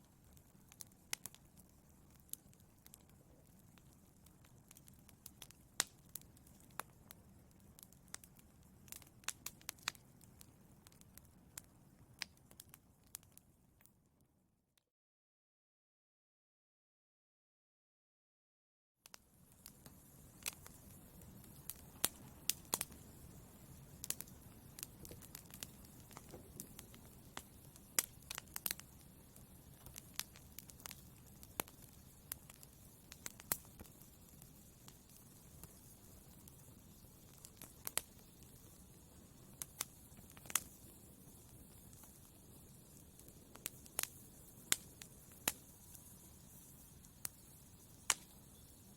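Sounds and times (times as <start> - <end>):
wood fire crackling: 0.0 - 13.9, 19.1 - 48.9
hiss of flames: 19.1 - 48.9.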